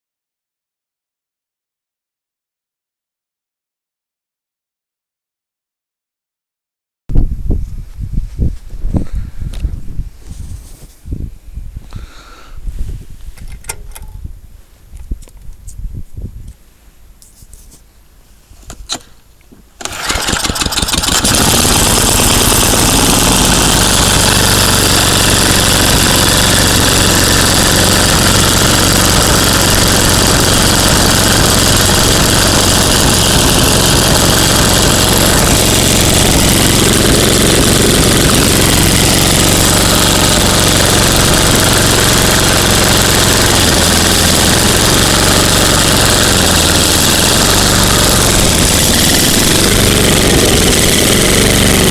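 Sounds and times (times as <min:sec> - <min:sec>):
snowblower engine starting and running: 0:19.8 - 0:51.9.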